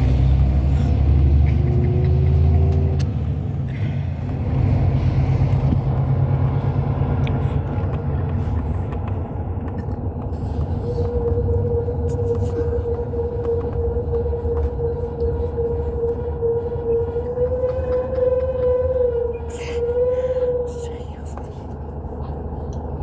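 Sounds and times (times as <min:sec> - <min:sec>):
diesel engine low rumble: 0:00.0 - 0:23.0
road noise: 0:00.0 - 0:23.0
steady hum: 0:10.4 - 0:22.6.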